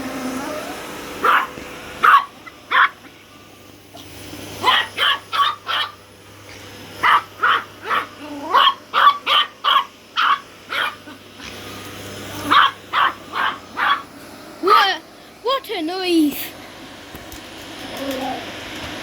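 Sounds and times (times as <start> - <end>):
small dog yapping: 0.4 - 3.1, 4.6 - 6.0, 7.0 - 11.5, 12.4 - 14.1.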